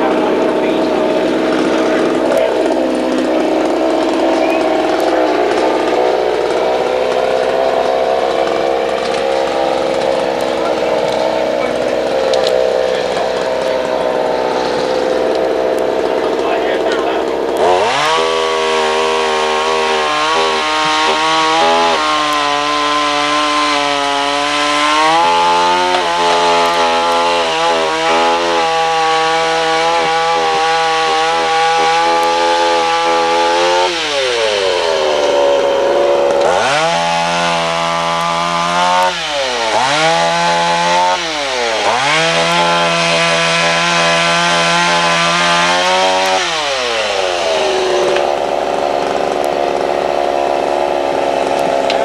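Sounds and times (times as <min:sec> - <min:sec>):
chainsaw running at high revs: 0:00.0 - 0:52.0.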